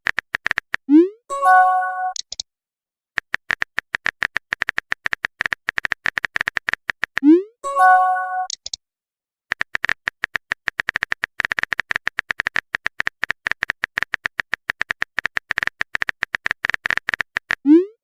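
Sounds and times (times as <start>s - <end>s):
phone keyboard tapping: 0.0s - 0.9s, 3.2s - 7.2s, 9.5s - 17.6s
electronic chime: 1.3s - 2.2s, 7.6s - 8.5s.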